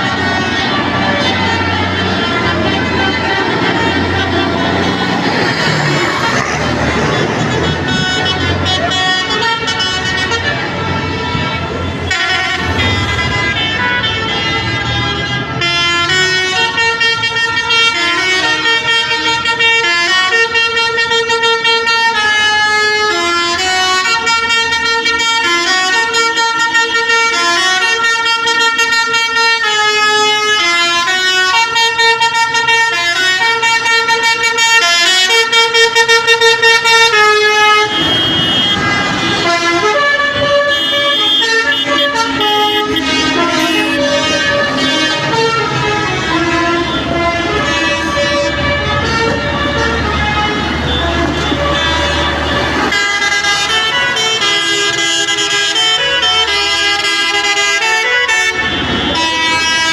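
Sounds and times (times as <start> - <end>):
engine rumble: 0.0 - 16.2, 37.1 - 53.0
musical vehicle horn tune: 0.0 - 59.9.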